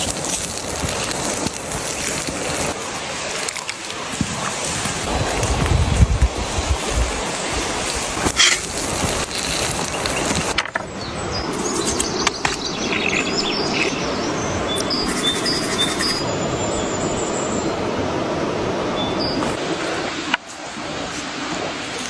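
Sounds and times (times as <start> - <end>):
steady rushing outdoor noise: 0.0 - 22.0
high bird chirps: 9.9 - 17.0.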